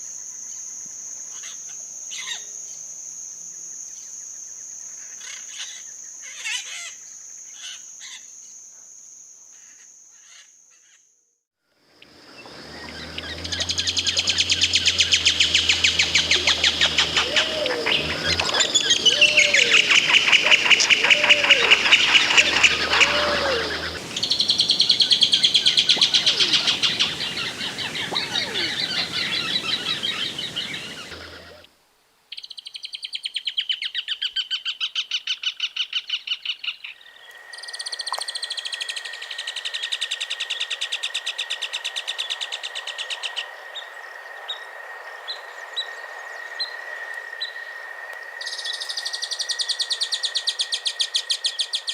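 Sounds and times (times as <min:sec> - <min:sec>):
birds chattering calls: 0:12.0 - 0:31.7
steady high whine: 0:12.0 - 0:31.7.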